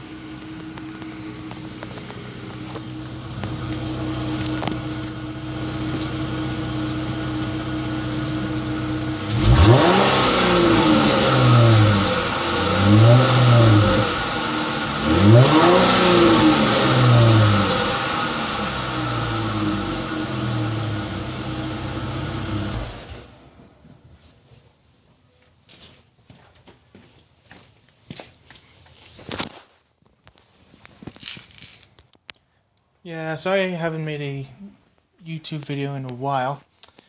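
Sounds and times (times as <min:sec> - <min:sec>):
car engine idling and revving: 0:00.0 - 0:23.7.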